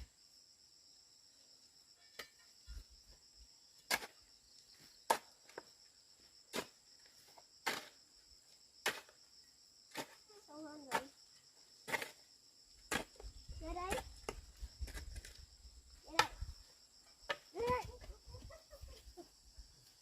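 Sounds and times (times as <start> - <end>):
insects chirring: 0.0 - 20.0
hand tool striking ground: 2.1 - 2.8, 3.8 - 4.2, 5.0 - 5.7, 6.5 - 8.0, 8.8 - 9.2, 9.9 - 10.2, 11.8 - 15.4, 16.1 - 16.5, 17.2 - 18.1.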